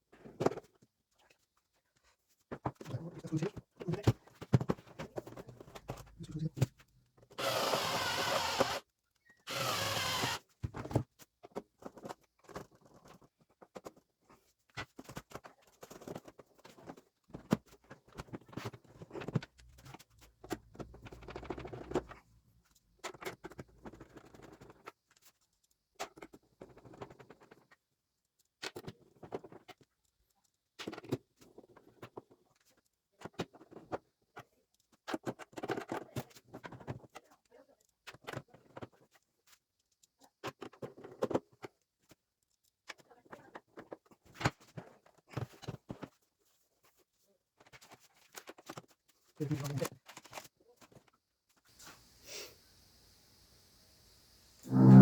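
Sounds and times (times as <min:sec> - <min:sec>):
electric screwdriver running: 0:07.4 - 0:08.8, 0:09.5 - 0:10.4.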